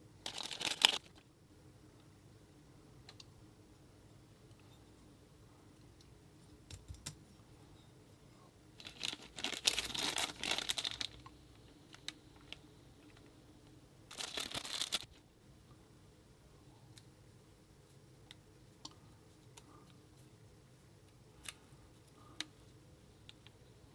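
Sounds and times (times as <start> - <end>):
packaging crinkling: 0.2 - 1.2, 8.8 - 11.2, 14.1 - 15.2.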